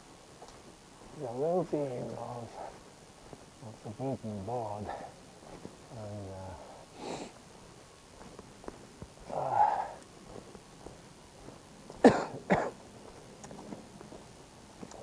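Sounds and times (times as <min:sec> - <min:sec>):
person clearing throat: 0:12.0 - 0:12.8
person coughing: 0:12.0 - 0:12.8.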